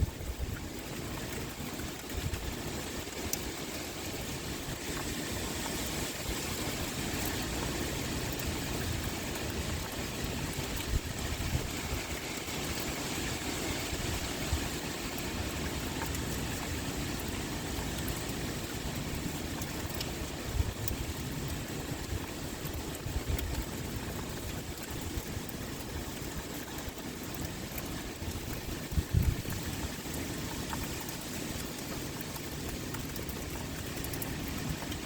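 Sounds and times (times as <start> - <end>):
rain pouring: 0.0 - 35.0
wind rumbling: 28.0 - 30.1.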